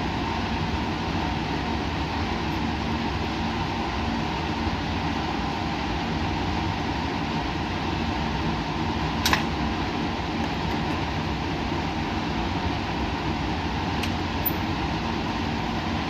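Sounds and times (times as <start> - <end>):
fans whirring hum: 0.0 - 16.0.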